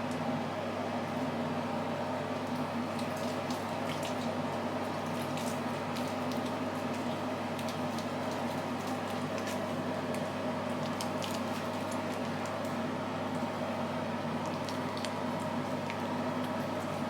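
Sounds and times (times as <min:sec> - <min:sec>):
wet squishing of lathered foam: 0:10.8 - 0:12.6.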